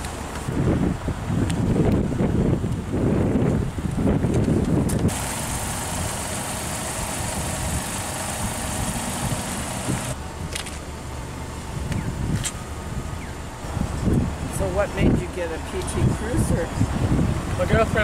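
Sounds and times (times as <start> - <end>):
car engine idling: 5.0 - 18.0
broad hiss: 5.1 - 10.2.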